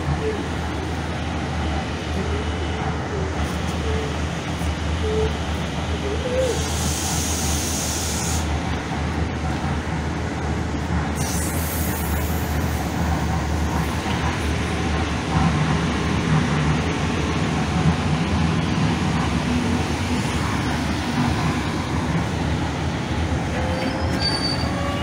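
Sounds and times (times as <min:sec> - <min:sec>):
train rumbling: 0:00.0 - 0:25.0
hiss: 0:06.4 - 0:08.6, 0:11.2 - 0:13.7.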